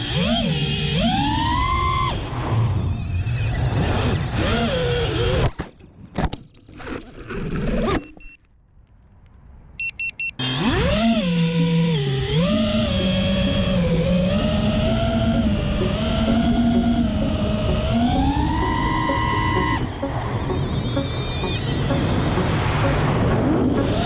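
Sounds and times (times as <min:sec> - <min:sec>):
motor sputters: 0:00.0 - 0:02.2, 0:03.4 - 0:05.6, 0:10.4 - 0:22.0
quadcopter motors whining: 0:00.0 - 0:05.5, 0:10.4 - 0:23.0, 0:23.6 - 0:24.0
short high electronic beeps: 0:17.5 - 0:24.0.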